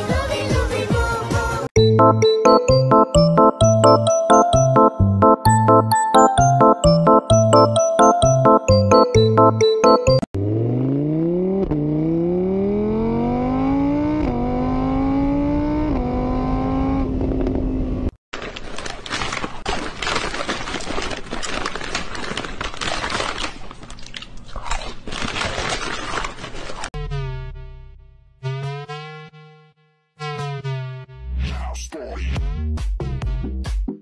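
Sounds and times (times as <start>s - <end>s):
car engine revving: 10.4s - 17.5s.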